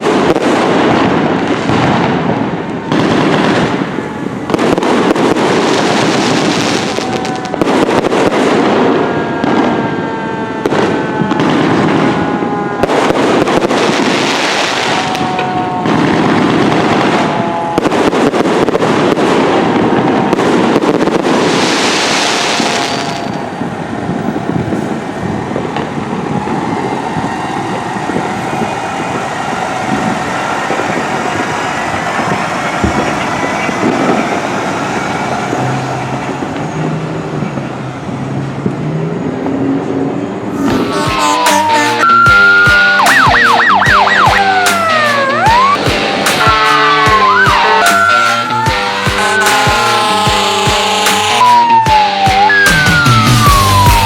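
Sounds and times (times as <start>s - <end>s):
air horn blasts: 6.4s - 20.4s, 21.4s - 36.7s, 40.5s - 51.8s
siren winding up and down: 40.5s - 54.0s.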